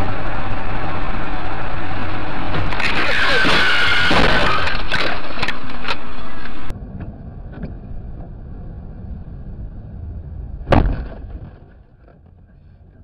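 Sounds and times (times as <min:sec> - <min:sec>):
road rumble inside car: 0:00.0 - 0:13.0
car collision impact: 0:10.7 - 0:11.7.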